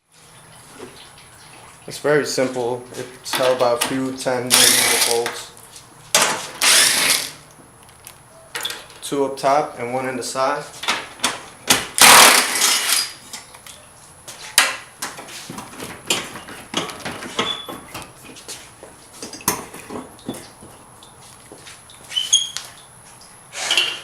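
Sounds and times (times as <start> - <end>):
tool clatter: 3.3 - 5.4, 6.1 - 7.4, 12.0 - 13.5
metal hand tools clinking: 4.5 - 5.3.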